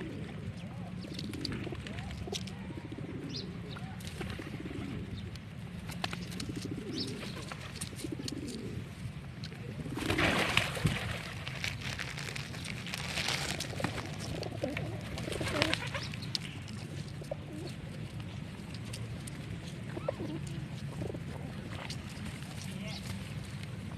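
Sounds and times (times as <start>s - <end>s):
pigeons cooing: 0.0s - 11.4s, 12.3s - 23.9s
rustling noise: 10.1s - 19.8s.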